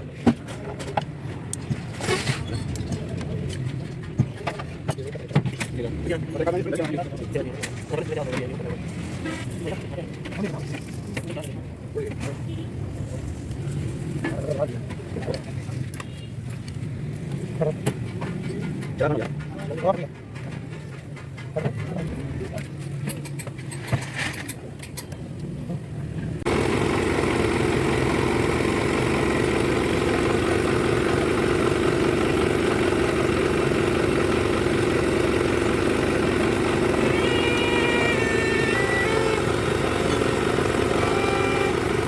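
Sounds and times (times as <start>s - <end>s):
engine running loudly: 26.5s - 42.0s.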